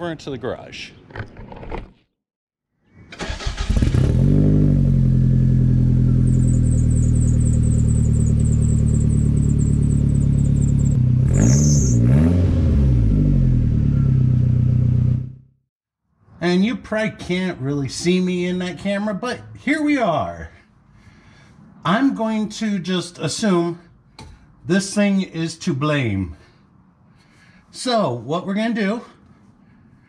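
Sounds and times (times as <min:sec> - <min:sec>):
car engine cranking and starting: 0:03.1 - 0:13.2
car engine revving: 0:03.2 - 0:15.4
car engine idling: 0:05.0 - 0:11.0.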